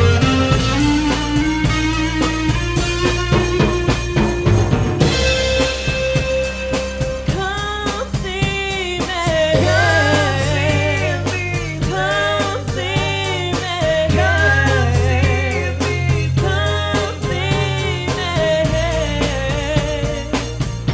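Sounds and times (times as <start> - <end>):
drum kit beat: 0.0 - 20.9
soul band playing: 0.0 - 20.9
person singing: 7.3 - 20.8.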